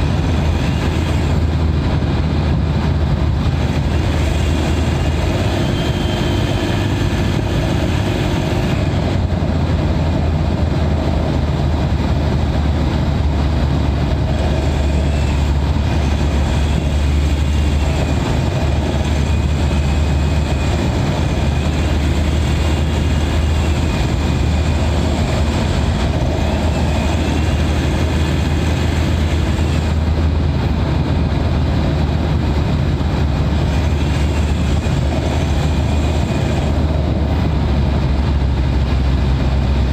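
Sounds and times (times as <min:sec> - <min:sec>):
diesel engine droning: 0:00.0 - 0:39.9
faint turbo whistle: 0:03.9 - 0:09.1.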